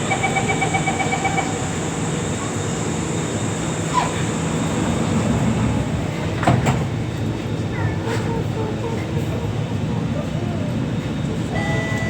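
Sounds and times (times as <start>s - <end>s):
metro train rumble and hum: 0.0s - 12.0s.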